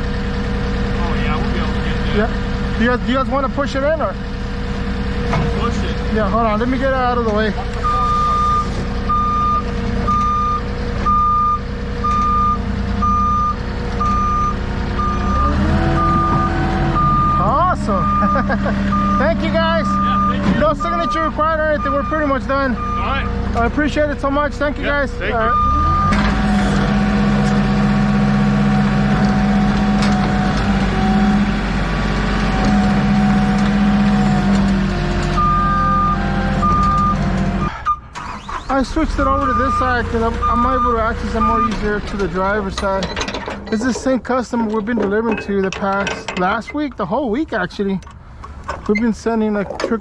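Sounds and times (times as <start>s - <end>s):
forklift engine running: 0.0s - 49.0s
forklift backup alarm beeping: 7.6s - 23.7s, 24.8s - 27.4s, 28.3s - 43.8s.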